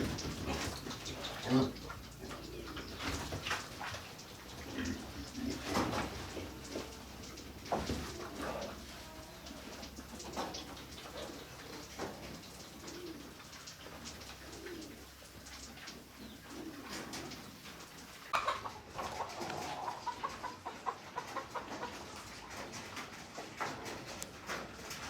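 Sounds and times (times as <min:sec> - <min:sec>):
doves cooing: 0:00.0 - 0:22.0.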